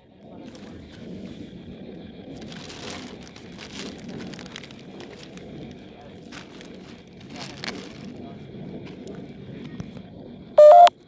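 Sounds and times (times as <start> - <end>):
crackling radio static: 10.6 - 11.0.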